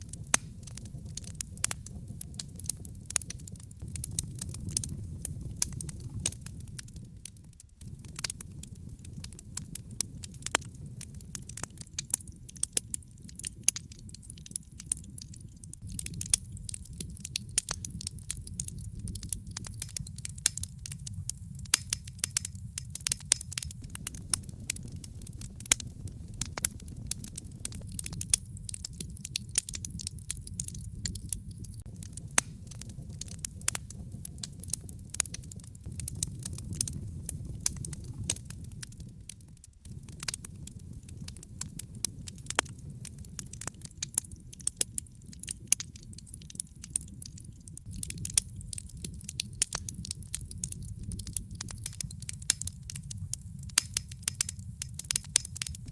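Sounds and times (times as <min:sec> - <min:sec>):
wood fire crackling and popping: 0:00.0 - 0:55.9
low rumble: 0:03.8 - 0:09.4, 0:22.7 - 0:34.4.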